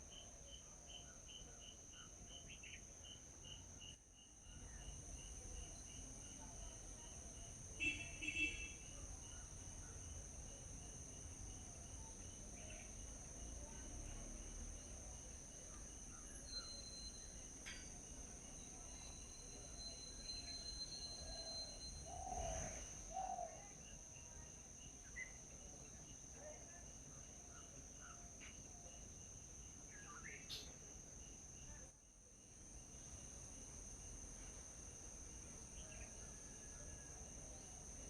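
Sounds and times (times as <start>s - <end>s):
insects trilling: 0.1s - 38.0s.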